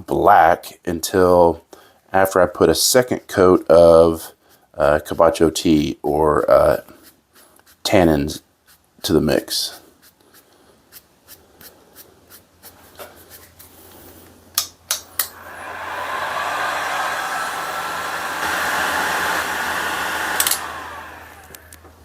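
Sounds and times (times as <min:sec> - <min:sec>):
heat gun blowing: 0:15.2 - 0:22.0.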